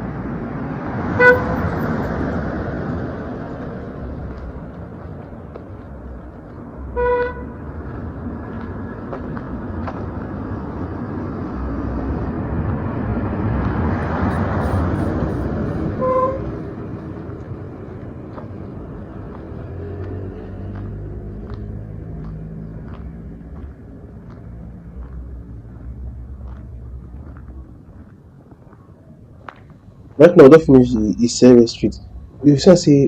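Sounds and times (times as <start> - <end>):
passing vehicle engine and tyres: 0.0 - 33.0
vehicle horn toot: 1.2 - 1.7, 6.9 - 7.6, 14.3 - 16.6.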